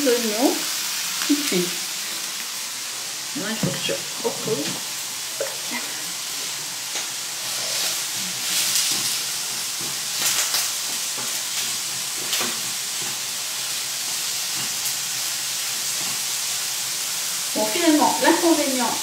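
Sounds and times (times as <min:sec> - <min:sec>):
onions sizzling in a pan: 0:00.0 - 0:19.0.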